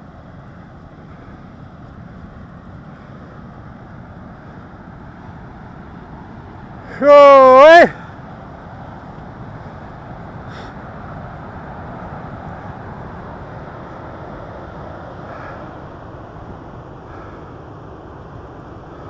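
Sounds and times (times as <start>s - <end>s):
mountain bike rolling: 0.1s - 6.7s.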